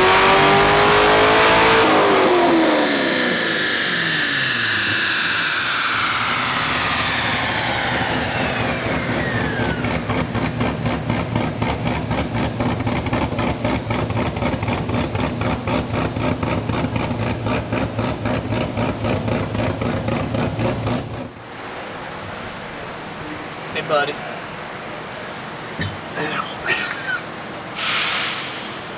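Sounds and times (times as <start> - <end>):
engine whine falling in pitch: 0.0 - 21.4
engine choppy loping idle: 2.6 - 21.4.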